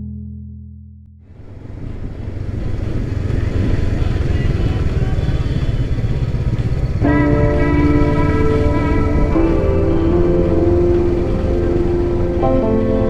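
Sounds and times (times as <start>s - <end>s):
road and wind noise: 1.2s - 13.0s
motorcycle engine running: 1.3s - 13.0s
low held music tone: 7.0s - 13.0s.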